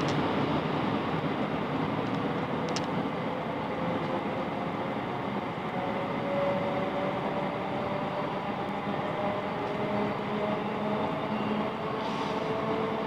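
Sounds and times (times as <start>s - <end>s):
train wheels rolling on rail: 0.0s - 13.0s.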